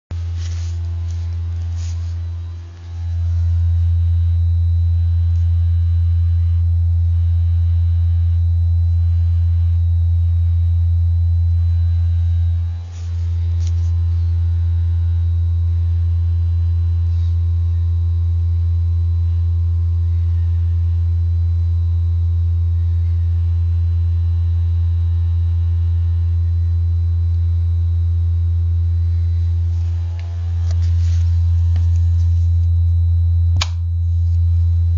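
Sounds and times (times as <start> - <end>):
low vibrating buzz: 0.1 - 34.9.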